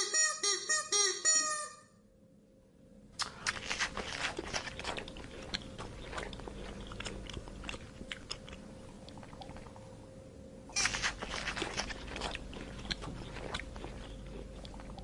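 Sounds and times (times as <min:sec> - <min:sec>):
animal chewing and crunching food: 0:03.2 - 0:09.9, 0:10.7 - 0:15.0.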